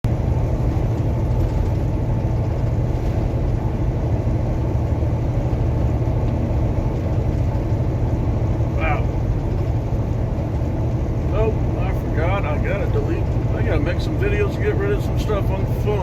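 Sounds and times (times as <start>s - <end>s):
road noise: 0.0s - 16.0s
truck engine rumble: 0.0s - 16.0s.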